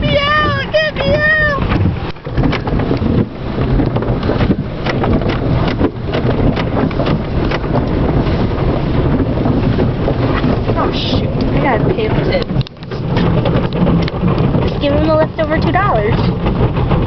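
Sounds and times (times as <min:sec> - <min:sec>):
car engine running: 0:00.0 - 0:17.0
wind buffeting microphone: 0:00.0 - 0:17.0
small clicks and knocks: 0:12.3 - 0:14.8.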